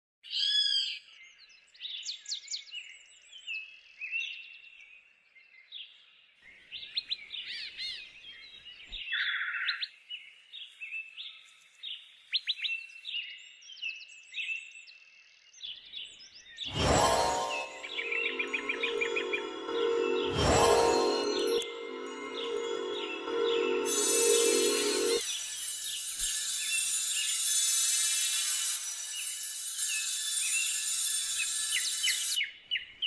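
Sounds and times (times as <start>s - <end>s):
birds chirping and trilling: 6.5s - 14.7s, 15.3s - 27.4s, 28.6s - 33.0s.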